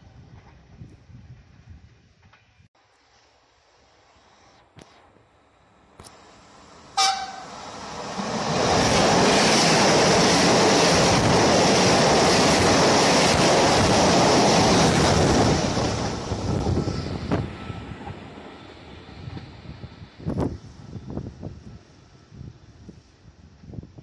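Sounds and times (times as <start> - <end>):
train passing at speed: 5.8 - 24.0
train horn toot: 7.0 - 7.6.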